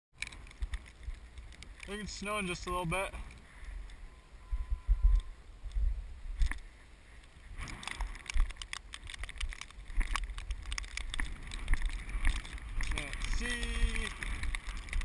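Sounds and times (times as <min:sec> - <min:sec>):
crackles and ticks: 0:00.1 - 0:15.0
wind buffeting microphone: 0:03.6 - 0:06.7, 0:07.4 - 0:15.0.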